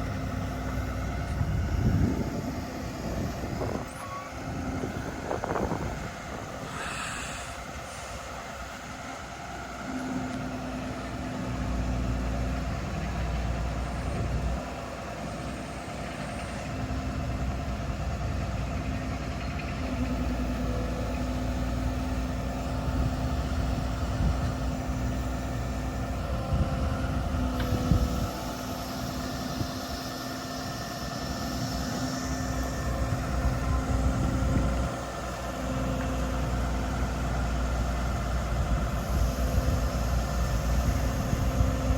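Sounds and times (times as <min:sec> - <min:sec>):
steady hum: 0:00.0 - 0:09.0
diesel truck engine running: 0:00.0 - 0:41.9.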